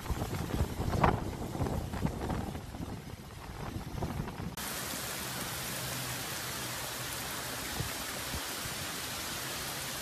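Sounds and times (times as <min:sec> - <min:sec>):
gusty wind: 0:00.0 - 0:04.6
heavy rain hissing: 0:00.0 - 0:10.0.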